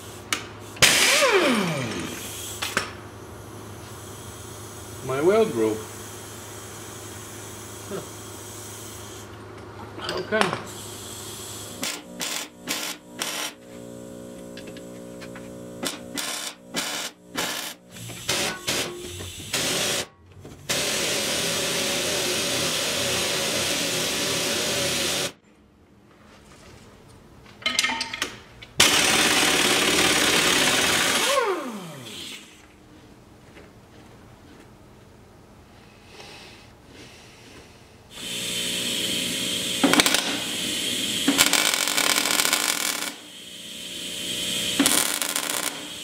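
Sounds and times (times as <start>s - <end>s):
angle grinder running: 10.8s - 20.1s, 28.8s - 32.6s, 38.1s - 46.0s.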